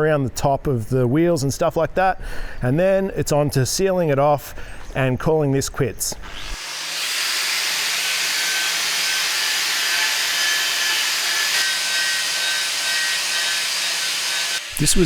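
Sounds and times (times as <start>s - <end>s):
angle grinder motor whine: 6.3s - 15.0s.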